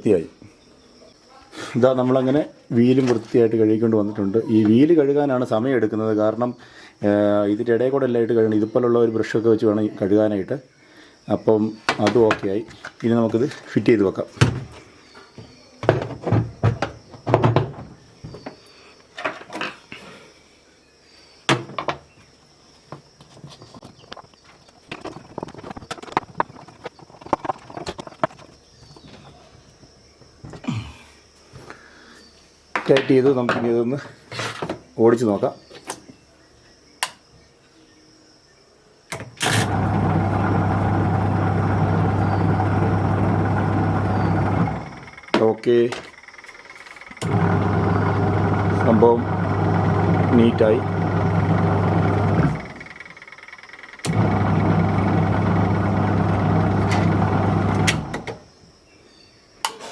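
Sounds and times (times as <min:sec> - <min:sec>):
plastic parts knocking and clunking: 0:11.9 - 0:13.0, 0:14.4 - 0:18.6, 0:21.5 - 0:22.1
washing machine motor running: 0:39.4 - 0:45.3, 0:47.1 - 0:58.4.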